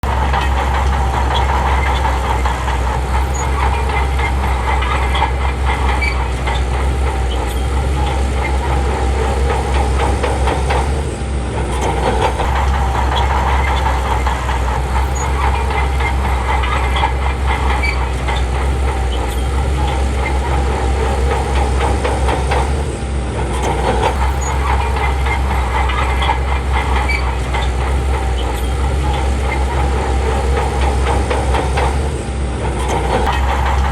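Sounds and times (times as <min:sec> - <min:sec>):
bulldozer diesel engine droning: 0:00.0 - 0:33.9
bulldozer tracks clanking: 0:00.0 - 0:33.9.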